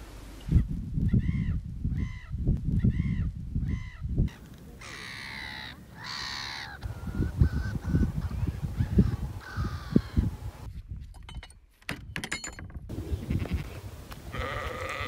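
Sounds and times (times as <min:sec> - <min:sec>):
wind buffeting microphone: 0:00.4 - 0:05.0, 0:05.8 - 0:15.0
coastal birds calling: 0:00.5 - 0:10.7.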